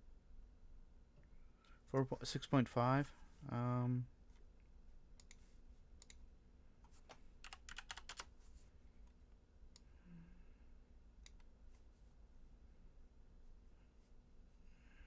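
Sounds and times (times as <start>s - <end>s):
low steady hum: 0.0s - 15.0s
computer keyboard keystrokes: 6.9s - 8.3s.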